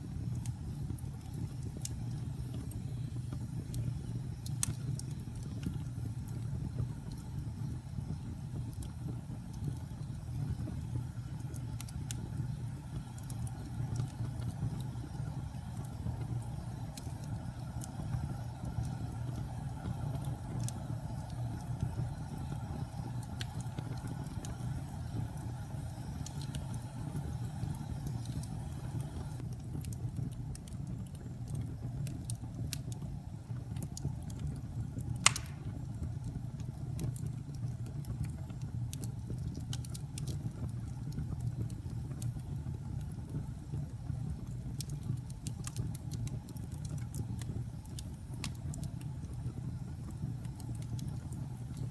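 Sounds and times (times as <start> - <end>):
fire crackling: 0.0 - 51.9
fire roaring: 0.0 - 51.9
sharp pop of fire: 35.2 - 35.9.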